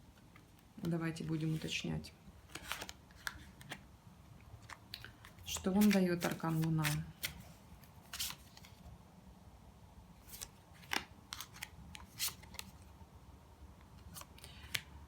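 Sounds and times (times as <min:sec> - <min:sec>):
cards clicking and snapping: 0:04.6 - 0:07.4, 0:10.3 - 0:12.7, 0:14.0 - 0:14.9.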